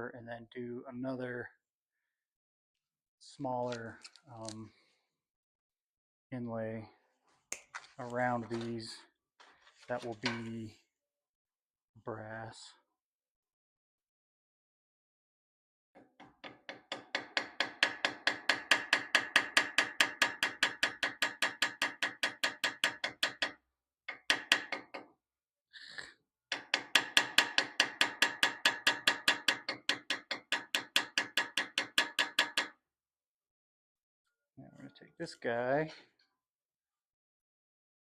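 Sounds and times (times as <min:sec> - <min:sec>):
small hammer tapping on metal: 0:16.2 - 0:25.1, 0:26.5 - 0:32.8.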